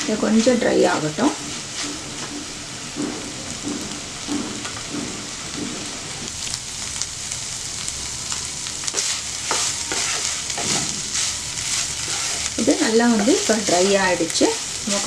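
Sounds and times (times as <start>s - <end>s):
wooden spatula scraping pan: 0.0s - 6.3s, 8.9s - 15.0s
food sizzling in a pan: 0.0s - 15.0s.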